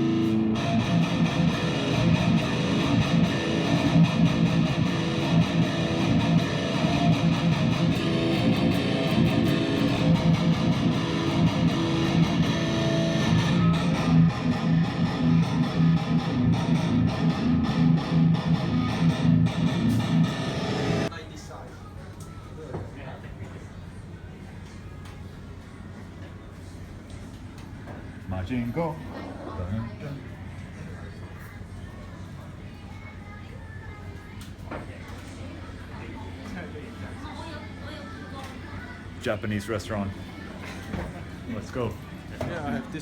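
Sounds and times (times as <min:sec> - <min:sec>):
electric guitar riff: 0:00.0 - 0:21.1.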